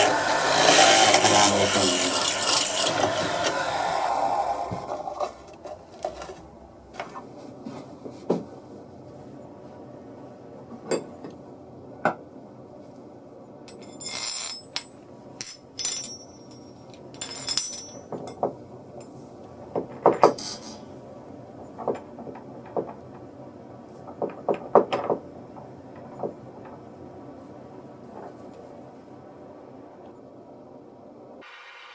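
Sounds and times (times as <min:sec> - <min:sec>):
bright metallic clinks: 0:13.7 - 0:18.1.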